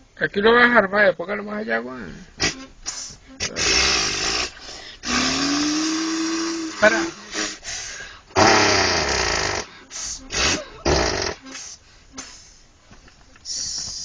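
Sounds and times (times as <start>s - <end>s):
boy imitating truck with mouth: 2.4s - 12.6s, 13.4s - 14.0s.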